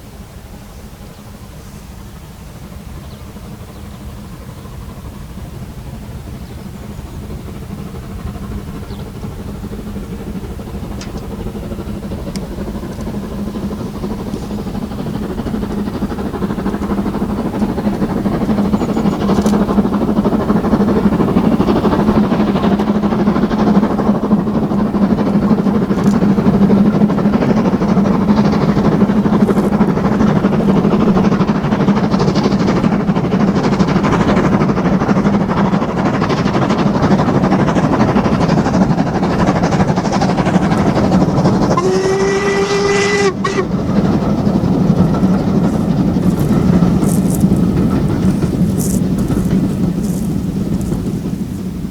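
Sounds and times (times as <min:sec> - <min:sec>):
steam train approaching: 0:00.0 - 0:51.9.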